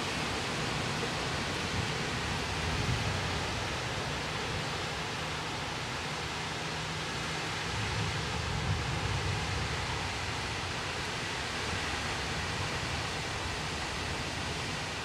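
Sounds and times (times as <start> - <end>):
strong storm wind blowing: 0.0 - 15.0.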